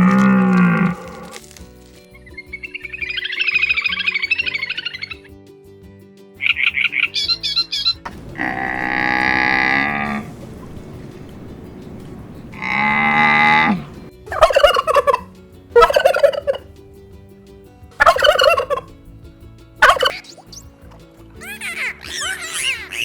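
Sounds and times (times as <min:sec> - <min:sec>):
long drawn-out animal calls: 0:00.0 - 0:01.3, 0:12.6 - 0:16.6, 0:18.0 - 0:18.9, 0:19.8 - 0:20.1
turkey gobbling: 0:02.7 - 0:05.2, 0:06.4 - 0:10.2, 0:12.6 - 0:16.6, 0:18.0 - 0:18.9, 0:19.8 - 0:20.2.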